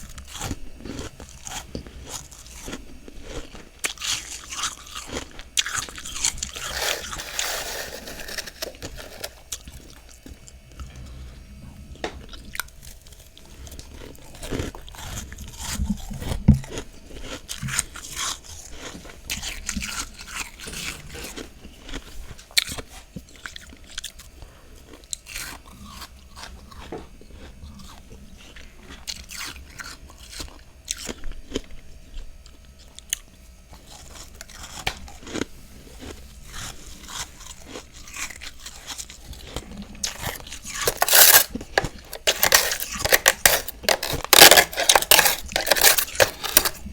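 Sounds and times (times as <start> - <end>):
person crunching frost: 0.3 - 10.2, 33.8 - 46.9.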